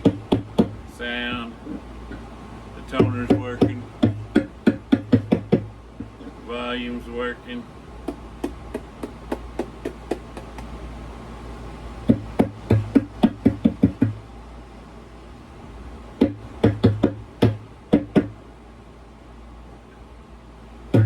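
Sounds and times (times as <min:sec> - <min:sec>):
amplifier electrical hum: 0:00.0 - 0:21.0
light taps on guitar: 0:08.1 - 0:10.7.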